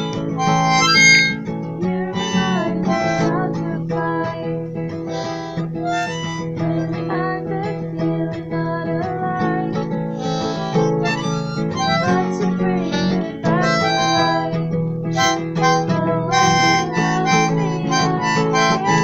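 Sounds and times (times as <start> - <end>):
harmonica: 0.0 - 3.9, 5.0 - 7.0, 10.1 - 19.0
strummed acoustic guitar: 0.0 - 19.0.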